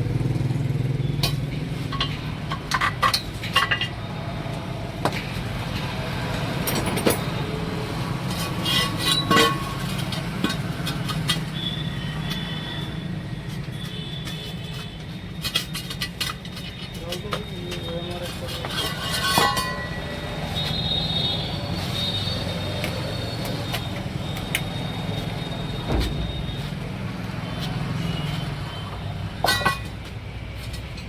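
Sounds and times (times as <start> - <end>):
metal tools clinking: 1.2 - 4.1, 6.6 - 7.6, 8.2 - 11.7, 14.6 - 20.8, 29.4 - 31.0.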